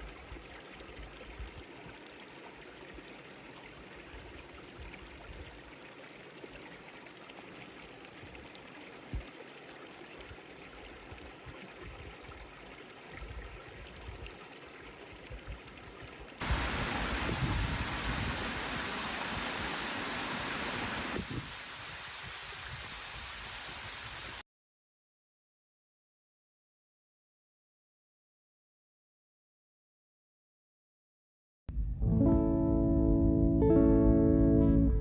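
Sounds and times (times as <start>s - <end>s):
soft rushing hiss: 16.4s - 24.4s
low rumble: 31.7s - 35.0s.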